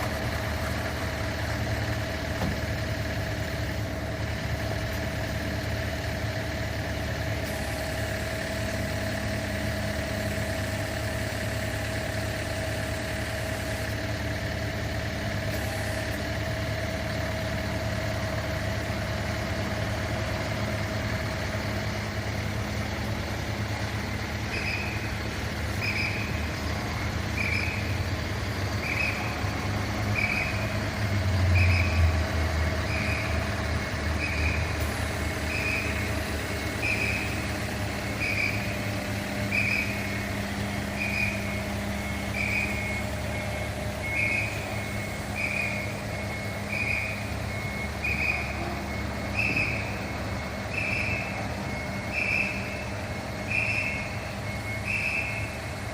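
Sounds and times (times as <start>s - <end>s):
diesel engine idling: 0.0s - 55.9s
warning beeper short beeps: 40.9s - 55.7s.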